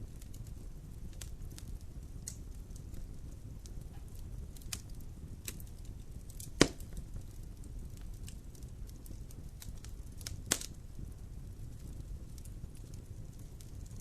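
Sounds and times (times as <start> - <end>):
fire crackling: 0.0 - 14.0
wood fire burning: 0.0 - 14.0
loud pop from fire: 3.6 - 10.8.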